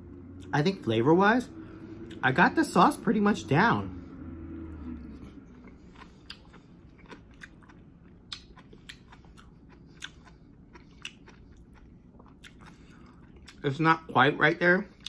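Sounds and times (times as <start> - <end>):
man chewing with mouth closed: 4.7 - 13.7.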